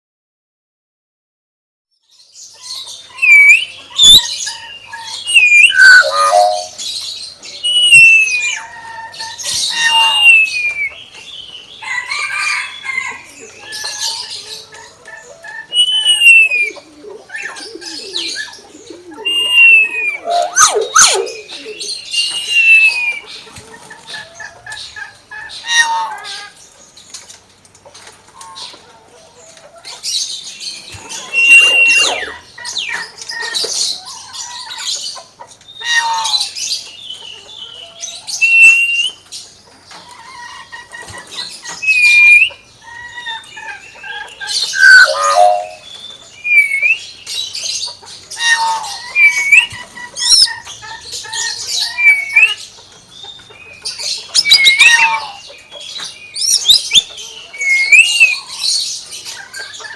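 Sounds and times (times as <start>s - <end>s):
myna squawking and whistling: 3.2s - 4.4s, 5.0s - 6.8s, 7.6s - 8.7s, 9.6s - 11.0s, 15.7s - 16.8s, 17.5s - 23.3s, 31.0s - 32.5s, 38.4s - 39.2s, 41.8s - 42.6s, 44.6s - 45.8s, 46.4s - 47.0s, 48.4s - 50.5s, 51.9s - 52.6s, 54.3s - 55.4s, 56.4s - 58.6s.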